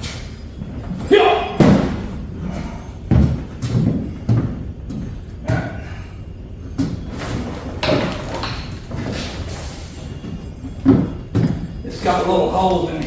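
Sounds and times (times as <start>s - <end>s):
thumps and knocks in truck bed: 1.5s - 2.2s, 10.2s - 12.1s.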